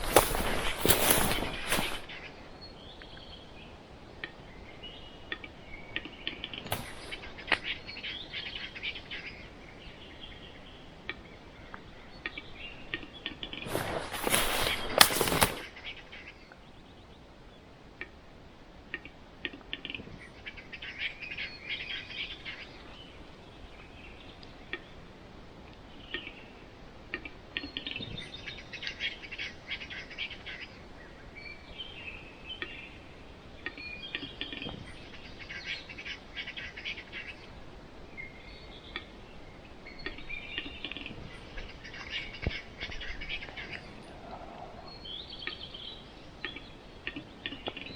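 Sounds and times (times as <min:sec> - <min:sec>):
capercaillie clicking and whetting: 0:00.0 - 0:02.2, 0:13.6 - 0:15.7
loud crackle: 0:00.0 - 0:02.4, 0:06.5 - 0:07.8, 0:13.4 - 0:16.2.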